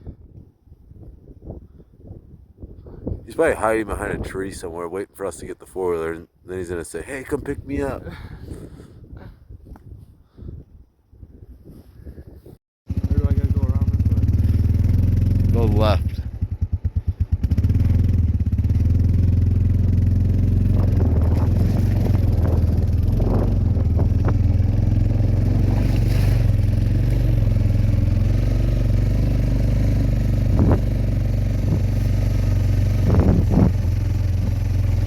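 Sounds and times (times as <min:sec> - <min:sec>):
atv engine running: 0:12.9 - 0:35.0.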